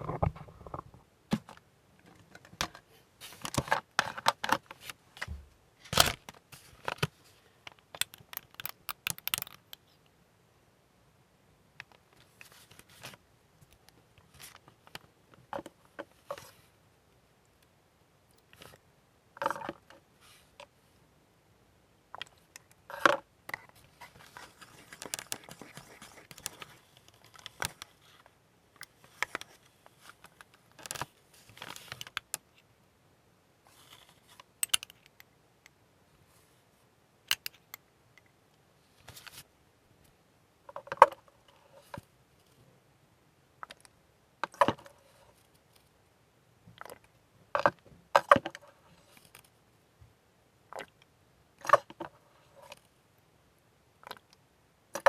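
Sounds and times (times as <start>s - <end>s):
small plastic clicks and taps: 7.7s - 9.8s
rustling: 22.4s - 32.2s.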